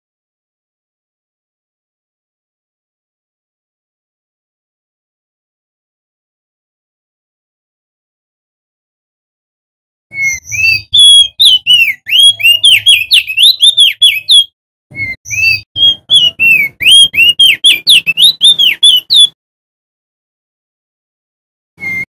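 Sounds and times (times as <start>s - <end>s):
bird singing whistled notes: 10.1s - 19.4s, 21.8s - 22.0s.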